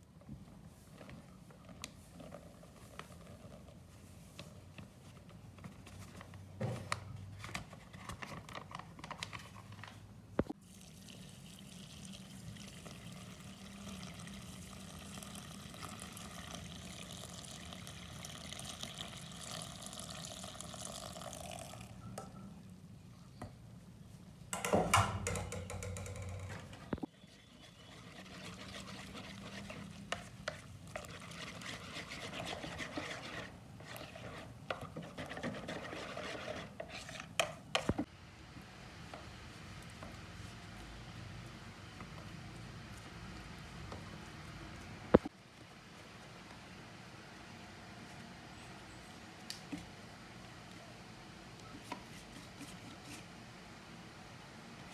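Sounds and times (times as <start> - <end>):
liquid pouring: 10.6 - 22.0.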